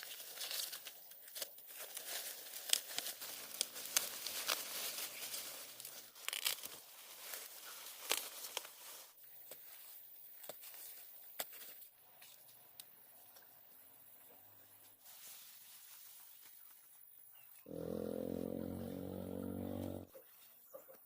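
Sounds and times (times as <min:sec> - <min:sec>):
crinkling and tearing with snaps: 0:00.0 - 0:09.8.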